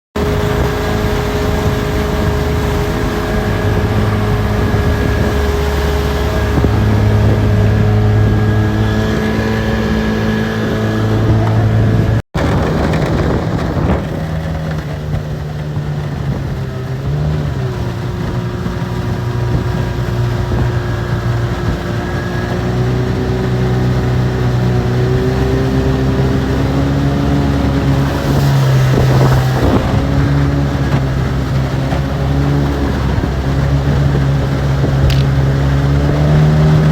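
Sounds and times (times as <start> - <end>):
outboard motor running: 0.2 - 36.9
wind on microphone: 0.2 - 36.9.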